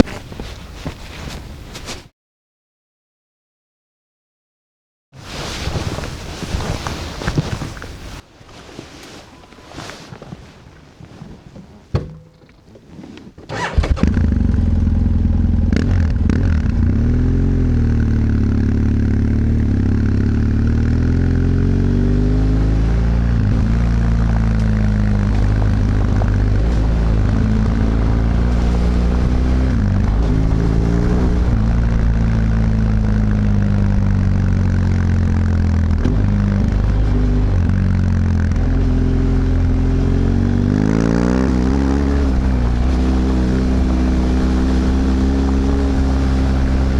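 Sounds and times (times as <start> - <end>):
motorcycle engine starting and idling: 11.8 - 22.5, 23.2 - 46.9.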